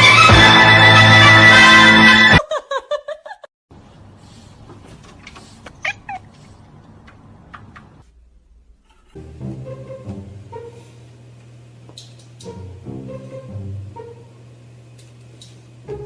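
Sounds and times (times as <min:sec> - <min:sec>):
cat meowing: 0:05.8 - 0:06.4.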